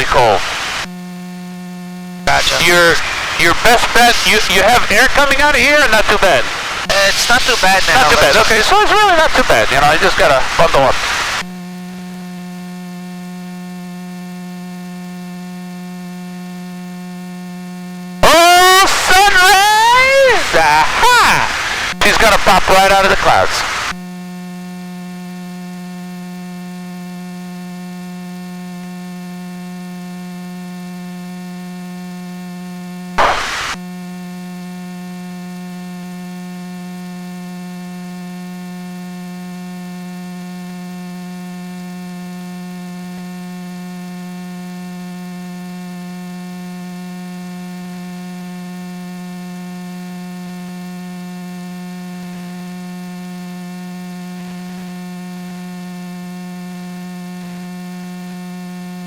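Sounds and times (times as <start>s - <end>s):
electrical hum: 0.0s - 12.9s, 17.9s - 24.0s, 33.2s - 33.8s
short burst of noise: 33.2s - 33.8s.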